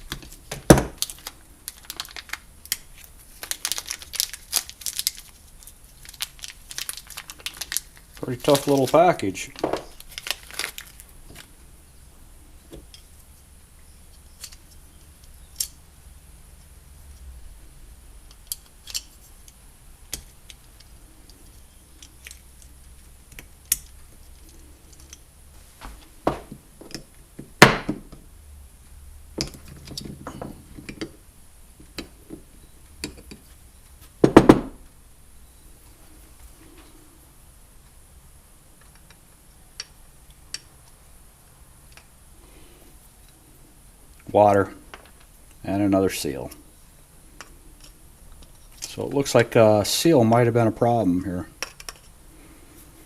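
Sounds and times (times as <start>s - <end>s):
metal parts and tools clinking: 14.1s - 15.8s.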